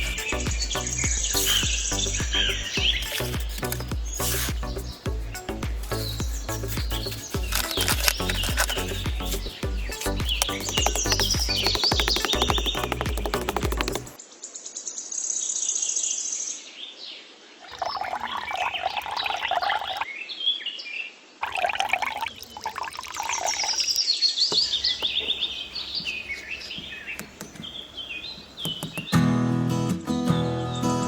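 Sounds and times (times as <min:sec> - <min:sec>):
music: 0:00.0 - 0:14.2, 0:29.1 - 0:31.0
small birds chirping: 0:00.0 - 0:14.2, 0:21.4 - 0:29.2.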